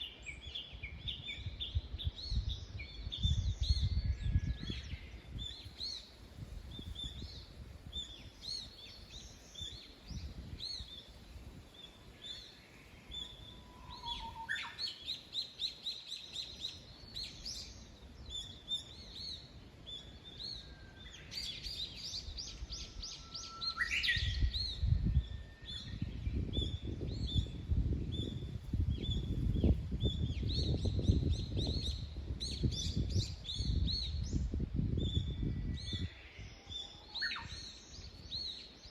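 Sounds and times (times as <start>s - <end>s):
songbirds chirping and singing: 0.0s - 38.9s.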